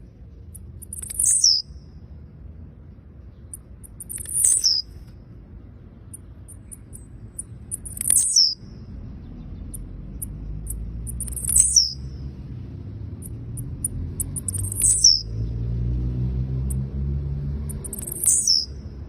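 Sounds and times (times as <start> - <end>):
thin high bird chirps: 0.4 - 2.0, 3.3 - 5.2, 6.0 - 12.2, 13.2 - 15.5, 17.7 - 18.8.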